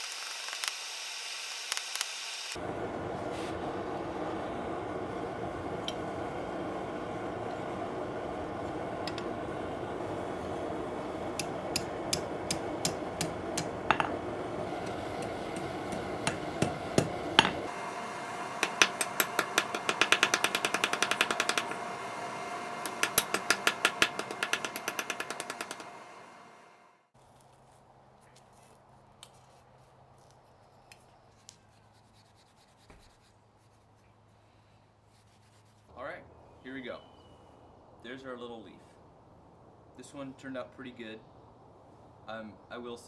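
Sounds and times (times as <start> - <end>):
hammer striking steel on anvil: 11.4 - 26.8.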